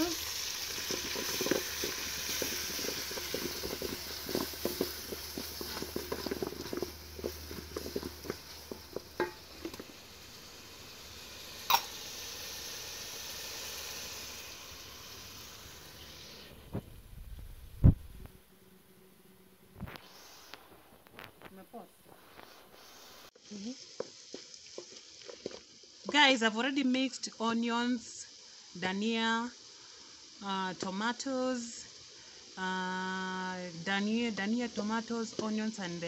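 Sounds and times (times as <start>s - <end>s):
vegetables sizzling in pot: 0.0s - 36.0s
wooden spoon knocking on pot: 0.9s - 9.9s.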